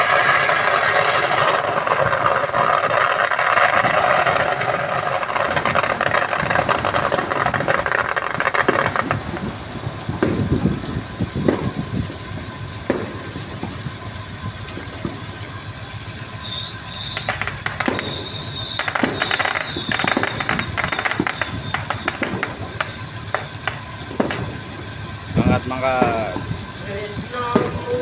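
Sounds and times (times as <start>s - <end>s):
boat engine running: 0.0s - 28.0s
knocks and rattles: 0.9s - 13.9s, 17.2s - 25.0s.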